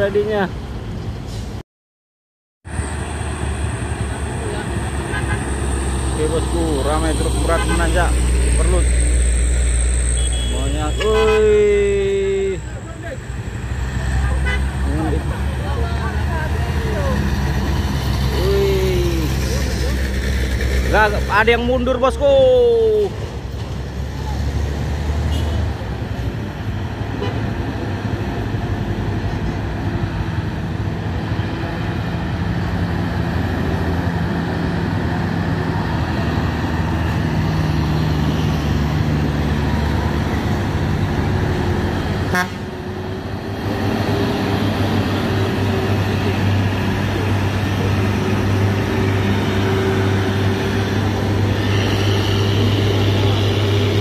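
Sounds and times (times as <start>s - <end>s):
diesel truck engines labouring: 2.7s - 54.0s.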